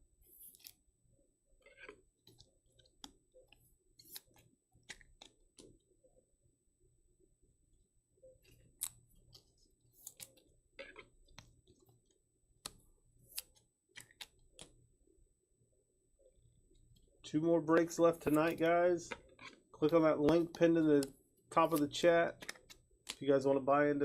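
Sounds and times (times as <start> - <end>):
trading cards clicking and scraping: 0.3 - 0.8, 1.6 - 5.7, 8.4 - 12.0, 12.6 - 14.8, 17.8 - 23.2.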